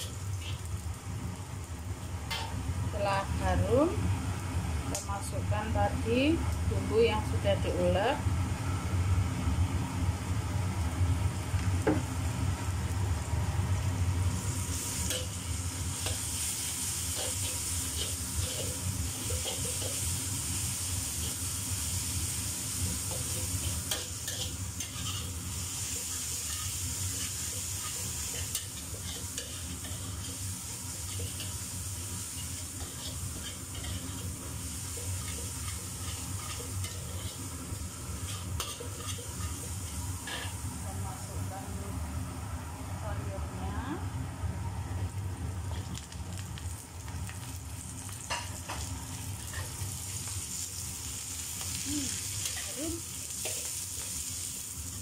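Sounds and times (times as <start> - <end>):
food sizzling in hot oil: 0.0 - 42.4, 45.1 - 55.0
metal spatula scraping a pan: 17.1 - 20.1, 23.0 - 31.6, 32.3 - 37.5, 38.2 - 40.6.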